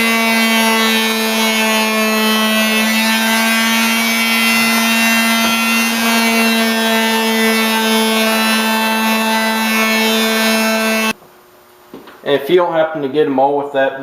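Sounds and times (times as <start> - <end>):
electric palm sander humming: 0.0 - 11.2.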